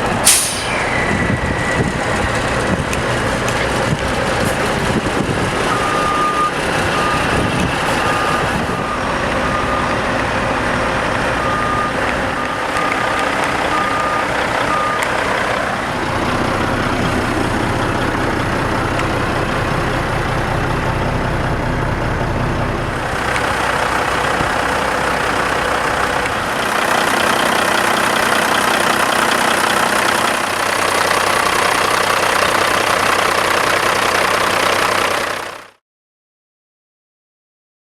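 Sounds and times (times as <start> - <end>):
diesel truck engine running: 0.0 - 35.8
reversing alarm beeping: 0.3 - 2.8, 5.6 - 15.4.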